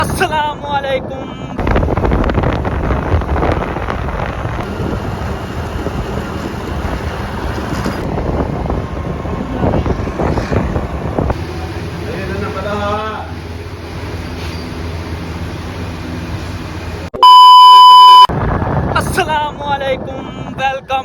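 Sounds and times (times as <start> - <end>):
wind buffeting microphone: 0.0 - 12.2, 18.3 - 21.0
moving vehicle rumble: 0.0 - 21.0.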